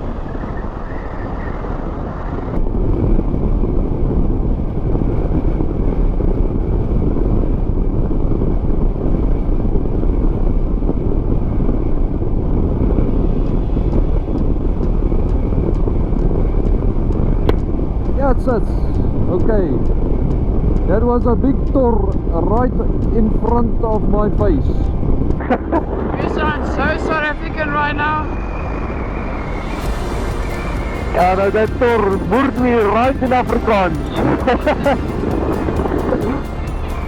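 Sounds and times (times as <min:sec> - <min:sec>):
road noise: 0:00.0 - 0:37.0
wind buffeting microphone: 0:00.0 - 0:37.0
motorcycle engine: 0:28.5 - 0:37.0.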